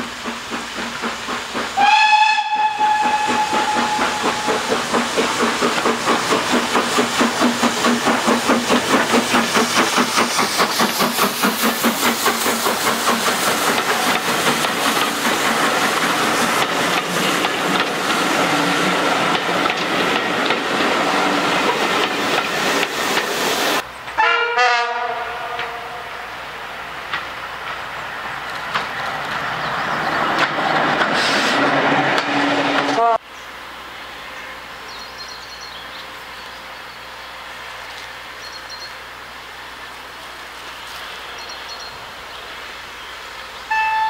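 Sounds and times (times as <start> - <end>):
diesel railbus running: 0.0 - 44.0
steam locomotive exhaust beats: 0.0 - 44.0
train horn: 1.8 - 4.7, 24.2 - 26.2, 43.7 - 44.0
wheels clicking over rail joints: 2.6 - 23.4, 27.0 - 32.9.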